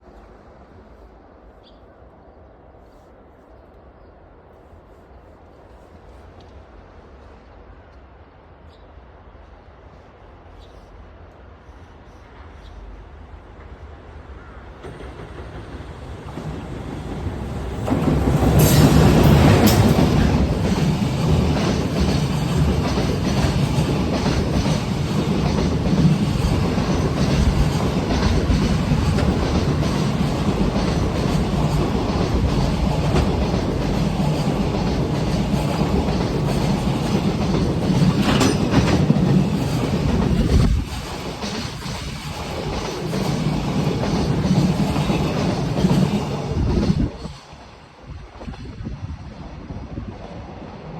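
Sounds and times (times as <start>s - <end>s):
electric locomotive passing: 9.1s - 50.9s
train wheels clacking over rail joints: 14.8s - 47.7s.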